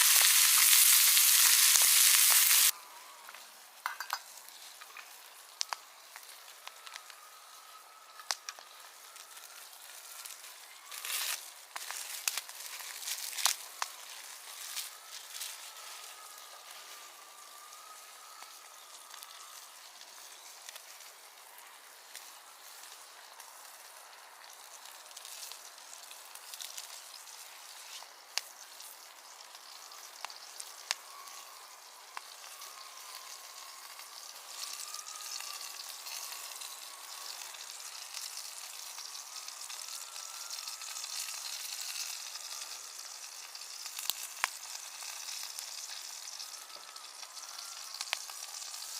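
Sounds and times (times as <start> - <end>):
food sizzling: 0.0 - 48.9
faint wavering high tone: 13.6 - 21.8, 29.7 - 43.2, 45.5 - 48.9.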